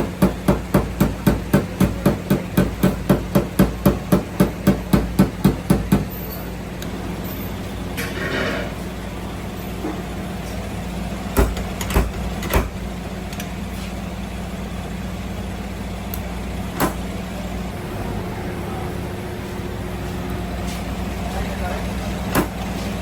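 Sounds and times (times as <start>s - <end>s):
engine droning: 14.2s - 23.0s.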